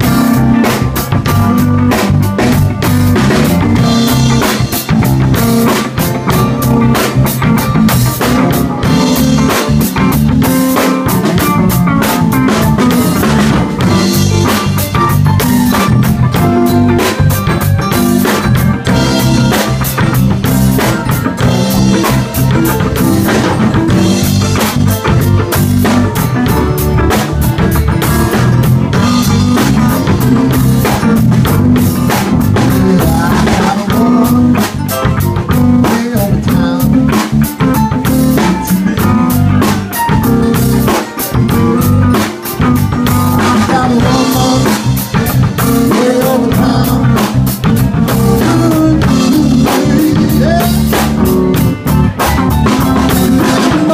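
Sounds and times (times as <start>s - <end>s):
bass: 0.0s - 53.9s
drum kit with rimshots: 0.0s - 53.9s
electric guitar: 0.0s - 53.9s.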